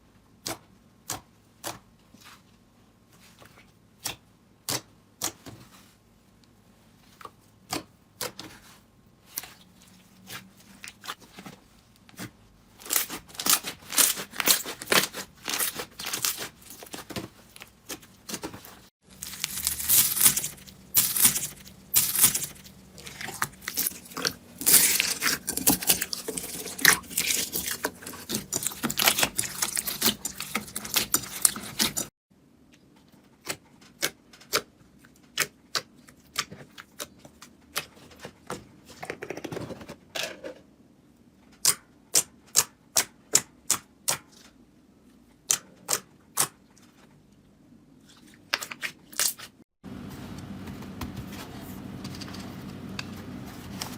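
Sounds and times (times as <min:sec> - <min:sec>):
slime crackling and popping: 0:19.1 - 0:32.1.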